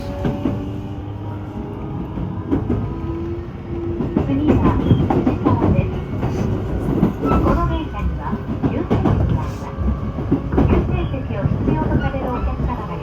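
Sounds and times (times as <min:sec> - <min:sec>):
wheel-on-rail squeals: 0:07.2 - 0:07.8.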